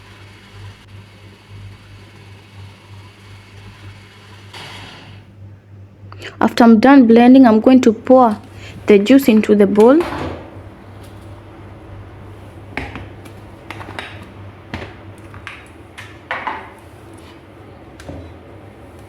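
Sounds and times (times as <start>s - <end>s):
kitchenware clinking and knocking: 9.3s - 10.5s, 12.8s - 16.8s.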